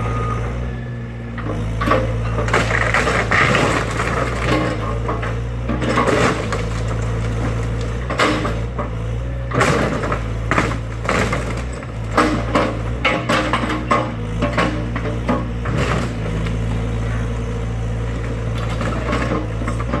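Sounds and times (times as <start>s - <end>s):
excavator diesel engine running: 0.0s - 20.0s
timber cracking and crashing: 2.4s - 8.8s, 9.4s - 16.8s.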